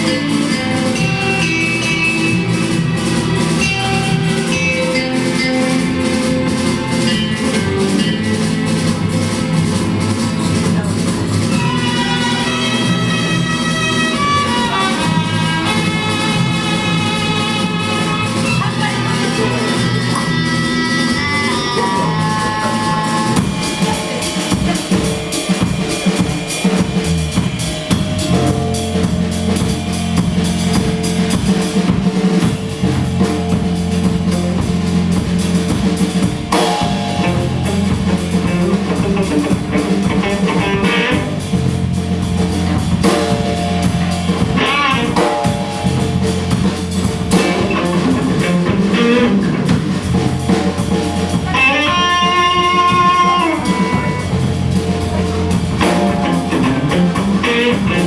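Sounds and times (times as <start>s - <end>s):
bass guitar: 0.0s - 58.0s
drum kit: 0.0s - 58.0s
electric guitar: 0.0s - 58.0s.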